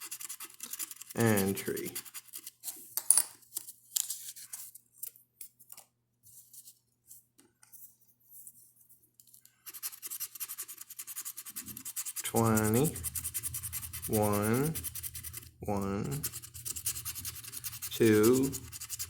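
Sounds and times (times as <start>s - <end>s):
lottery ticket being scratched: 0.0s - 2.7s, 9.7s - 19.0s.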